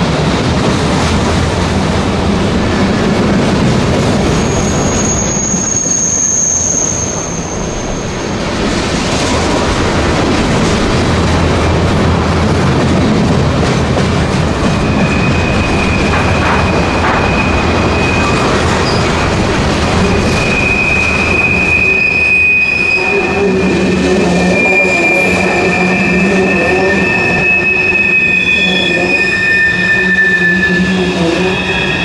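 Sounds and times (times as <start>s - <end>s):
freight train rumbling past: 0.0s - 32.0s
high wheel squeal: 4.2s - 8.4s, 14.8s - 19.2s, 20.0s - 32.0s.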